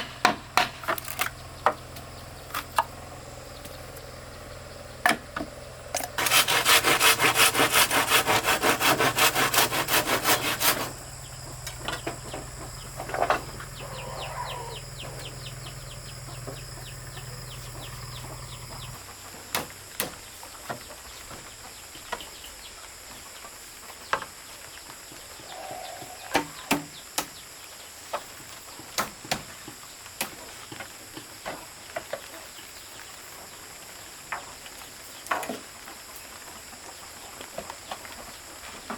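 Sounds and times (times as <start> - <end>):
saw cutting wood: 5.9 - 19.0.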